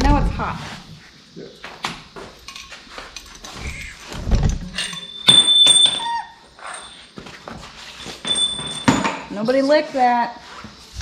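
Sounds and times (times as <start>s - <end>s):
metal parts knocking on workbench: 4.7s - 6.1s, 8.2s - 9.3s
sharp metallic clinks: 4.7s - 7.2s, 8.0s - 9.3s
dog whining: 5.7s - 7.1s.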